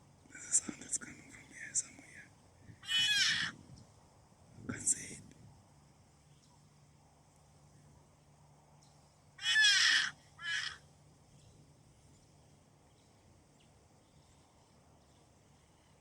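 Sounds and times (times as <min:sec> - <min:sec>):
rock hyrax harsh calls: 0:02.8 - 0:03.6, 0:09.4 - 0:10.8.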